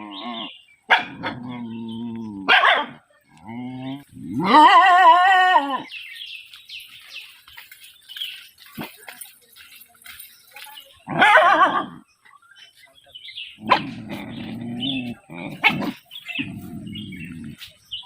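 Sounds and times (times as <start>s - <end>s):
dog barking and howling: 2.4s - 3.1s, 4.3s - 5.9s, 11.1s - 12.0s, 15.1s - 16.5s.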